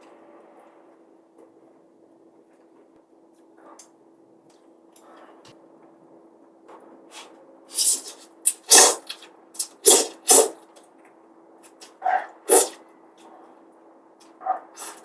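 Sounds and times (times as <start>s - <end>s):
noodles being slurped: 7.7s - 10.6s, 12.5s - 12.8s, 14.8s - 15.0s.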